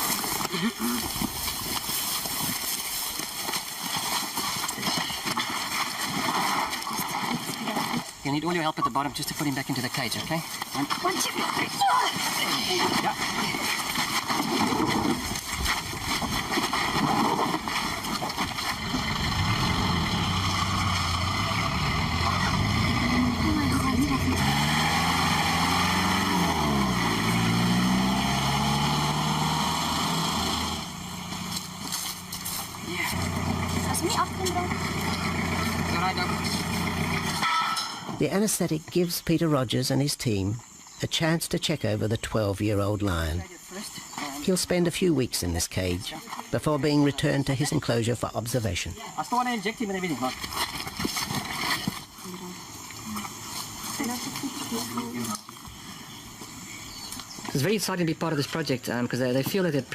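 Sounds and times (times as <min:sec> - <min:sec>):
shuffling footsteps: 0:00.0 - 0:08.2, 0:30.8 - 0:37.4, 0:50.1 - 0:57.7
vehicle engine running: 0:18.4 - 0:38.2.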